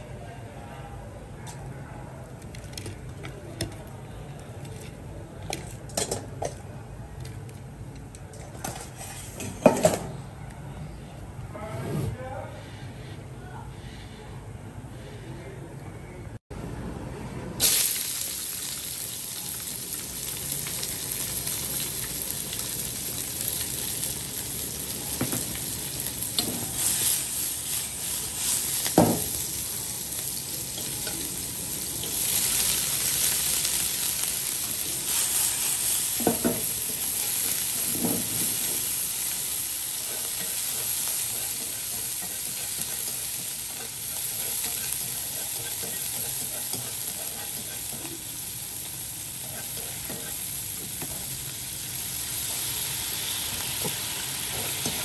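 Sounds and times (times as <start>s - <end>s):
garlic sizzling in hot oil: 17.6s - 55.0s.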